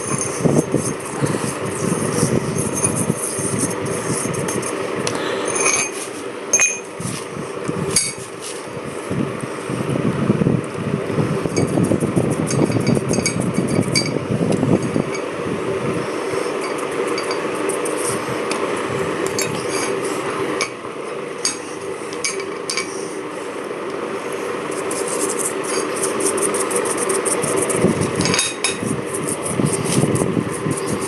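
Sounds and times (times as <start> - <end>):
steady hum: 0.0 - 31.0
steel parts clinking and knocking: 6.6 - 6.9.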